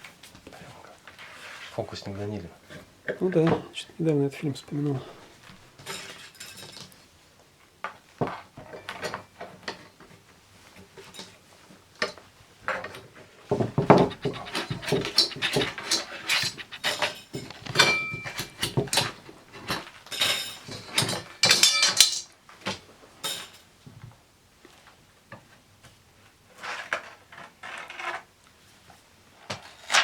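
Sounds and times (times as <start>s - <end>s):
hard objects clattering and scraping: 12.0s - 22.4s.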